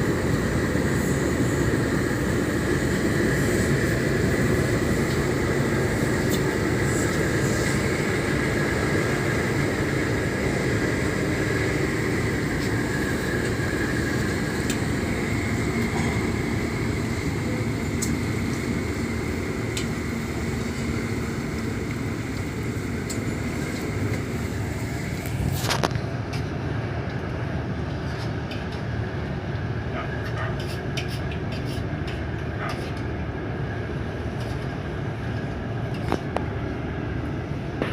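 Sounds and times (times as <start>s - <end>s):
hiss: 0.0s - 25.6s
ship diesel engines rumbling: 0.0s - 27.8s.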